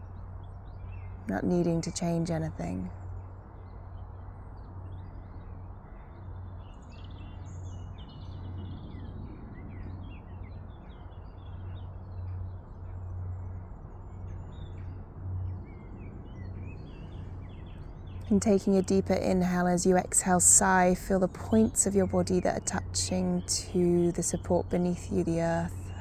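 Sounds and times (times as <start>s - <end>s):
steady low rumble: 0.0s - 26.0s
small birds chirping: 14.2s - 26.0s.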